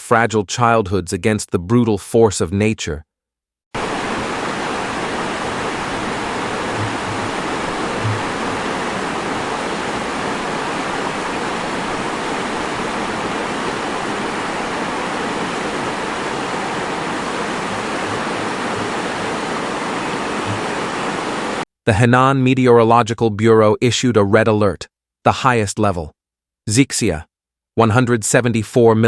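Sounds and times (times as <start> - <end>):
heavy water rushing: 3.8 - 21.6.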